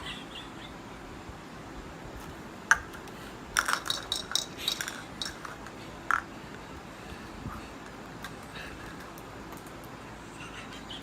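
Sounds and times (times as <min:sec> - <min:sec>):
small hard objects clicking: 0:02.7 - 0:06.3.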